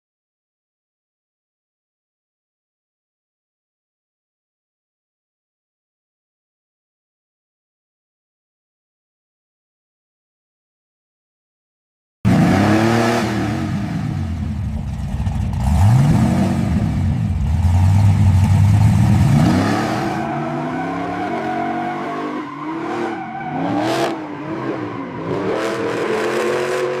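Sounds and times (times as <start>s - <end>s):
car engine revving: 12.3s - 27.0s.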